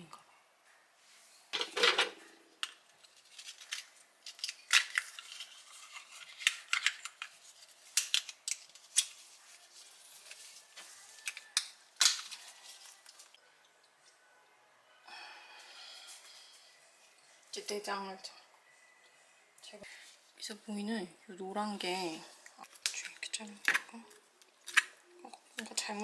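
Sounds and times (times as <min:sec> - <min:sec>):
metal utensils clicking and scraping: 0:01.5 - 0:13.4.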